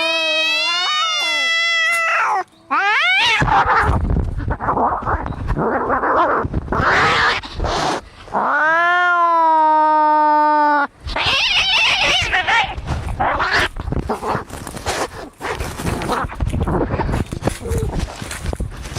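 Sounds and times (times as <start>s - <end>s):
cat yowling: 0.0s - 4.0s, 8.4s - 13.7s
cats snarling and hissing: 0.0s - 18.9s.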